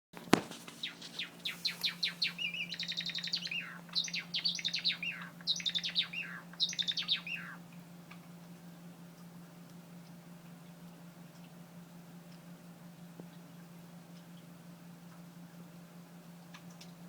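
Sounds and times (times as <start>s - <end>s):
steady low hum: 0.2s - 14.0s
sparrow singing: 0.6s - 7.6s.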